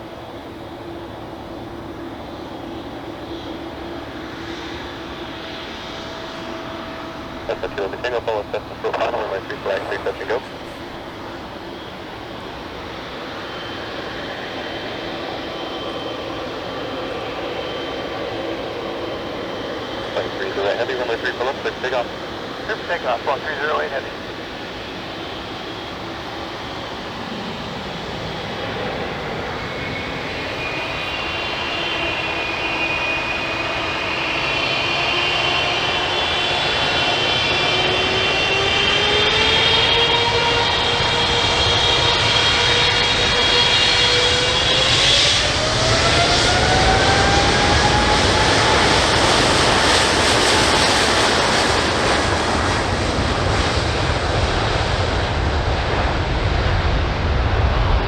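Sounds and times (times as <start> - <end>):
jet engines spooling up: 0.0 - 58.0.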